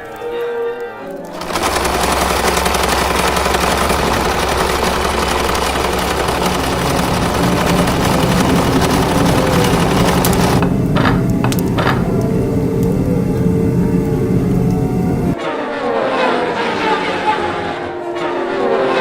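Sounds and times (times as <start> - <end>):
rapid mechanical rattle: 1.2 - 15.4
low hum: 1.3 - 15.4.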